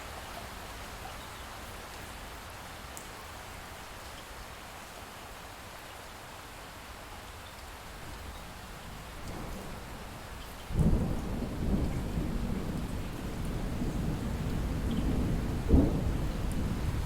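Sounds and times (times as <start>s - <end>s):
light rain falling: 0.0s - 17.0s
distant thunder rumble: 10.7s - 17.0s.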